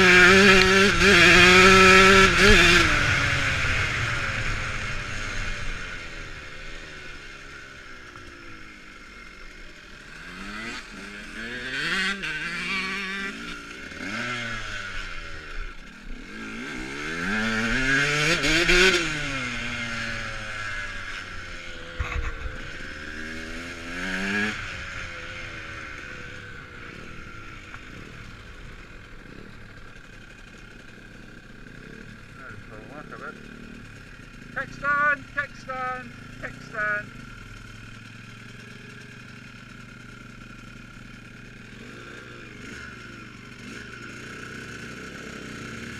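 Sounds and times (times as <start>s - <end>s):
dirt bike engines revving: 0.0s - 45.9s.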